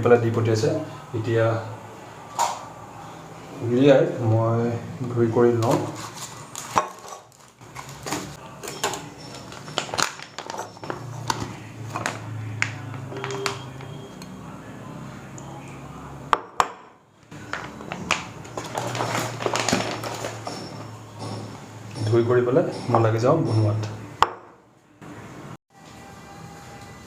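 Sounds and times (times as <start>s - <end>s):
dishes and utensils clattering: 5.6s - 12.2s, 17.4s - 24.4s.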